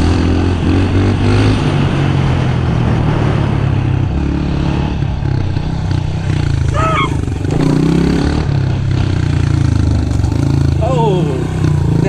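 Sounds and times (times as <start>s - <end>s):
pit bike engine running: 0.0s - 12.0s.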